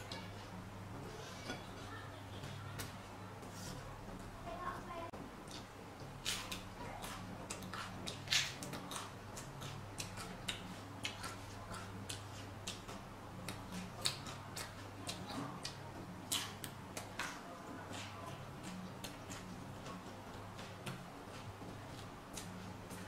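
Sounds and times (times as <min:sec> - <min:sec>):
crunching raw vegetables: 0:06.2 - 0:20.0.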